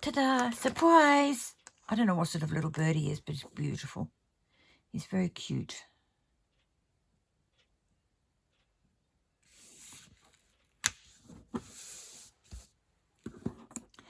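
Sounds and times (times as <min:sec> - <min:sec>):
paper rustling and sliding: 0:09.5 - 0:12.7.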